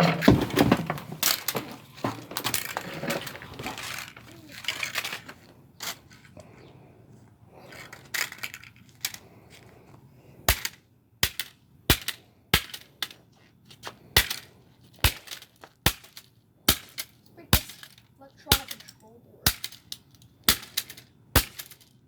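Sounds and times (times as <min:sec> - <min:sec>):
blows smashing washing machine: 0:00.0 - 0:04.0.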